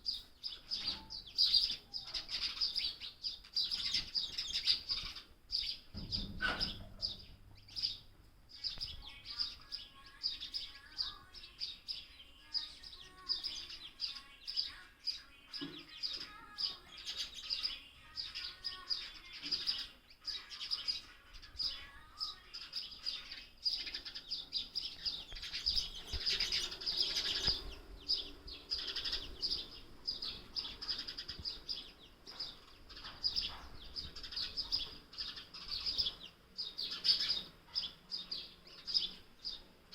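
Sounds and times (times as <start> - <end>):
young sparrow chirping: 0.0 - 39.9.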